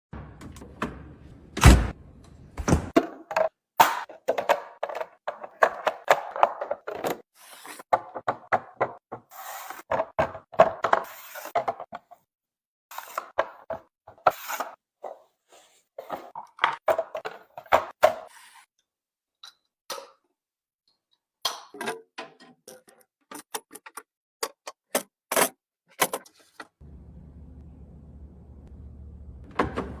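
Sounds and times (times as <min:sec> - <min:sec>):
low hum: 0:26.8 - 0:29.5.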